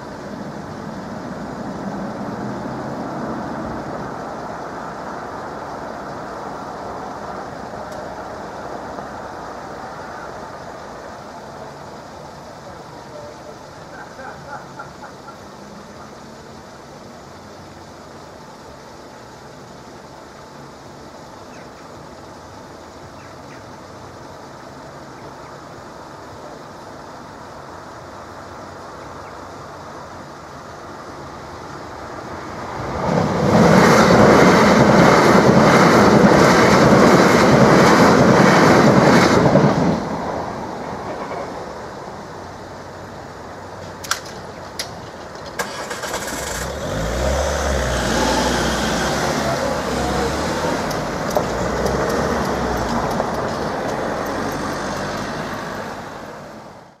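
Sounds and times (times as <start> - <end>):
car engines and tyres: 0.0 - 57.0
electric train passing at speed: 0.0 - 57.0
crossing barriers clattering: 43.7 - 46.8, 49.4 - 55.4.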